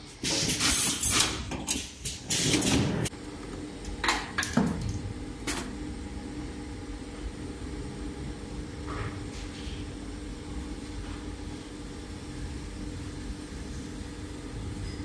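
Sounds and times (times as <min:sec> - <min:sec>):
steady machine hum: 0:01.9 - 0:15.0.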